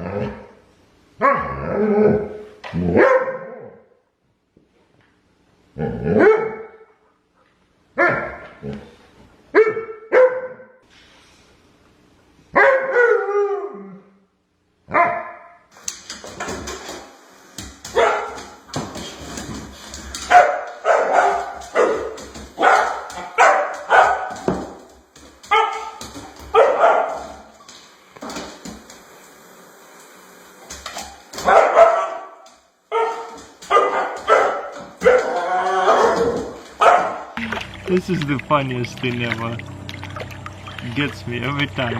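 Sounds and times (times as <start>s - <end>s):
dog barking: 2.9s - 3.8s, 6.2s - 6.9s, 8.0s - 8.5s, 9.5s - 10.8s, 12.5s - 13.4s, 14.9s - 15.6s, 18.0s - 18.4s, 20.3s - 24.5s, 25.5s - 27.5s, 31.4s - 37.4s.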